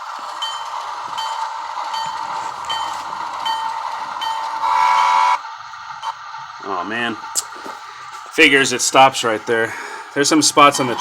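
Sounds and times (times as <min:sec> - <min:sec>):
locomotive bell ringing: 0:00.0 - 0:05.4, 0:10.2 - 0:11.0
electronic diesel engine running: 0:00.0 - 0:11.0.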